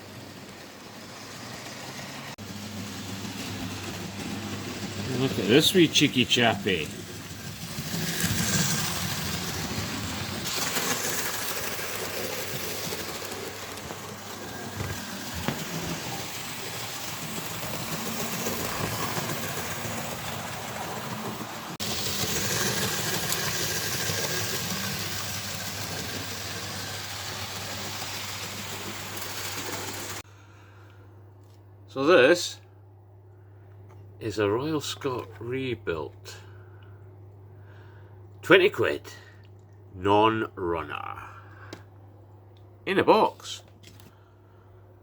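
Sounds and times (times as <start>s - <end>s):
model train motor whirring: 0.1s - 30.2s.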